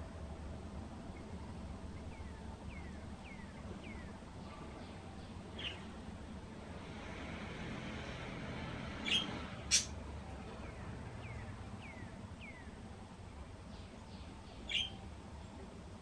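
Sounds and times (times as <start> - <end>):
birds chirping: 9.0 - 9.9, 13.8 - 15.0.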